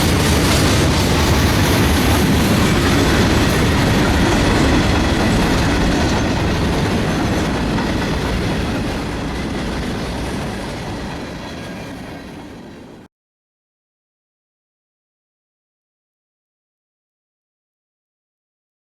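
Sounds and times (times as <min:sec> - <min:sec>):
freight train clattering over rails: 0:00.0 - 0:13.1.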